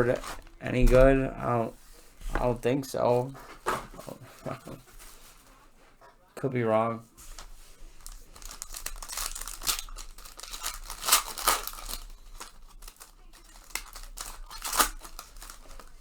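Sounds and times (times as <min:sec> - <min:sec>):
foil wrapper tearing and crinkling: 0:00.0 - 0:01.2, 0:07.3 - 0:16.0.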